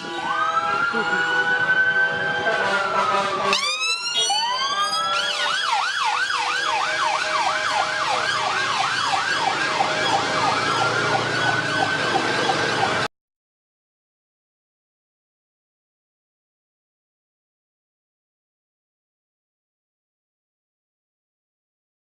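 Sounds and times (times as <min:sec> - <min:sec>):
fast siren yelp: 0:00.0 - 0:13.1
siren wail: 0:00.0 - 0:13.1.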